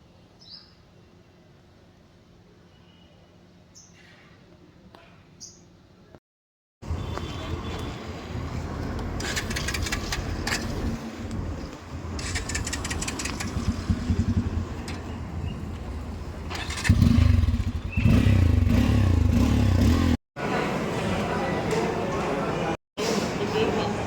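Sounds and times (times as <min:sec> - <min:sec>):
motorcycle engine running: 0:12.2 - 0:20.2.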